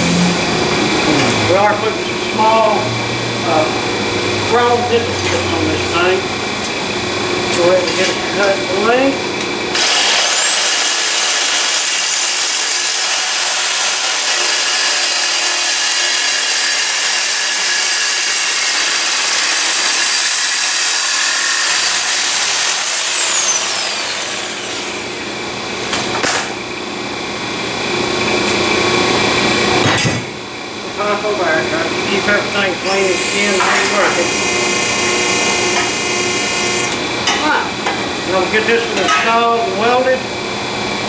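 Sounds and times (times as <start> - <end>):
power saw cutting steel: 9.7 - 25.3, 32.8 - 37.4.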